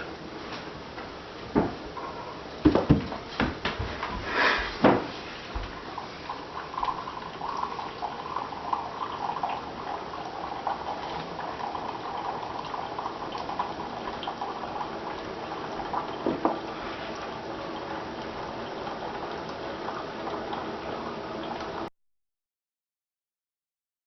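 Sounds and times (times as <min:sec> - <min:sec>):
coffee maker gurgling: 0:01.6 - 0:21.9
liquid filling a cup: 0:05.5 - 0:21.9.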